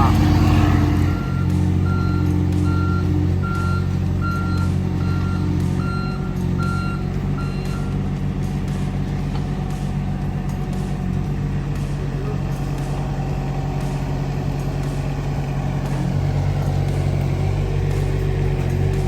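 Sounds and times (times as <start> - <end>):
backup alarm beeping: 0.0 - 8.0
digging machine engine running: 0.0 - 19.0.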